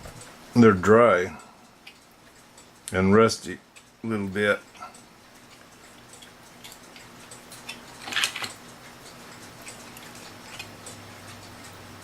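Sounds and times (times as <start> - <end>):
metallic clicks and scrapes of clock parts: 5.3 - 11.6
metal parts rattling: 8.0 - 8.6.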